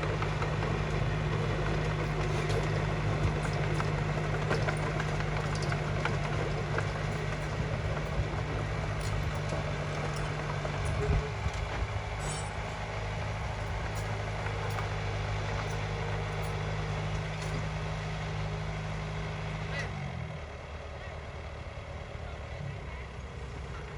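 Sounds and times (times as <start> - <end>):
bulldozer diesel engine running: 0.0 - 23.9.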